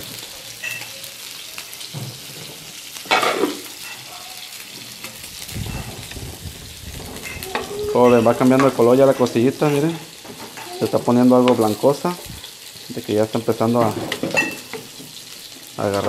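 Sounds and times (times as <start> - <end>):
frying sizzle: 0.0 - 16.0
scrape on a griddle: 1.9 - 6.4.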